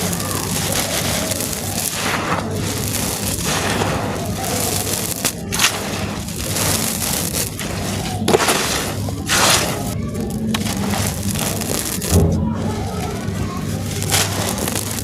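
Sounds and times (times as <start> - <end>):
pieces snapping: 0.0 - 12.2, 13.8 - 15.0
stony chunks crunching on floor: 0.0 - 12.2.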